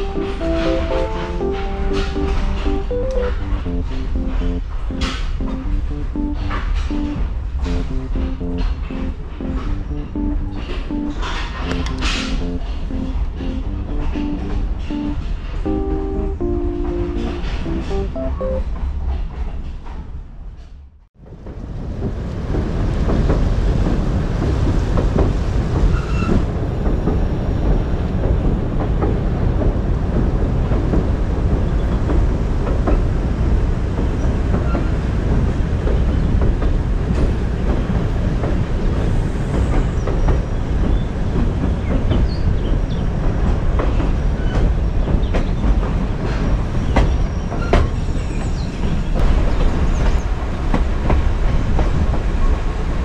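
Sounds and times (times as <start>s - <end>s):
train wheels rumbling on rails: 0.0s - 18.2s, 18.8s - 53.0s
clicks and clacks: 0.0s - 18.6s
background music: 0.0s - 18.7s.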